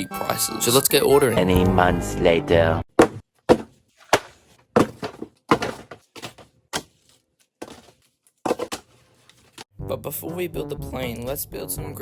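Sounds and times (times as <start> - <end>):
short hard thunks: 3.0 - 6.9.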